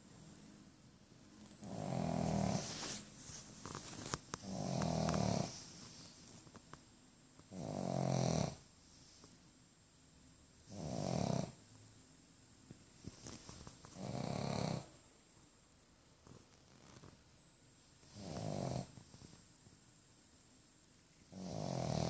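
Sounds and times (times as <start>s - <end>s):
dog snoring: 1.6s - 3.0s, 4.3s - 5.7s, 7.5s - 8.7s, 10.6s - 11.6s, 13.9s - 15.0s, 18.0s - 19.2s, 21.3s - 22.0s.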